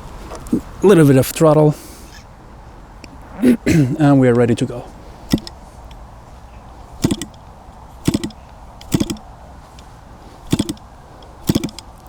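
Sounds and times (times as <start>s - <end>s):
model engine turning over knocks: 5.3s - 5.6s, 7.0s - 7.4s, 8.0s - 9.3s, 10.5s - 11.9s.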